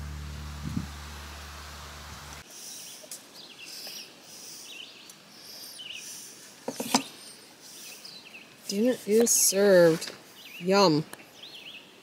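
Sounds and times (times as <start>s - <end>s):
birds chirping: 2.4s - 12.0s.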